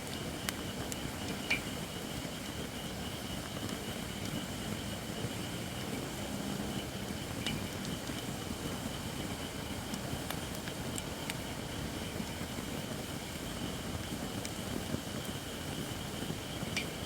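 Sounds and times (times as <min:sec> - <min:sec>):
wood fire hissing: 0:00.0 - 0:17.0
fire crackle pop: 0:07.1 - 0:17.0.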